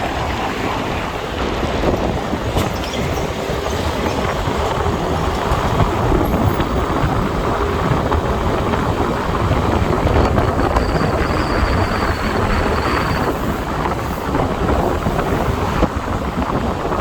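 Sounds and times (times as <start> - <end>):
wind rumbling on microphone: 0.0 - 17.0
motorbike engine: 3.9 - 15.7.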